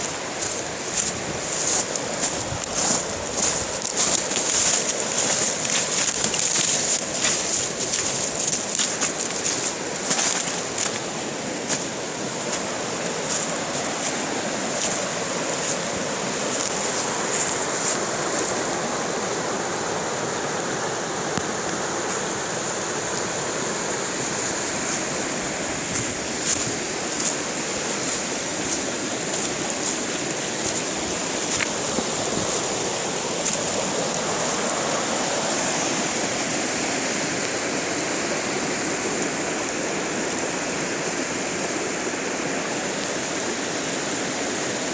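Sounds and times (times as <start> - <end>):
water ticks and splashes: 0.0 - 18.8, 25.8 - 34.9
river water rushing: 0.0 - 44.9.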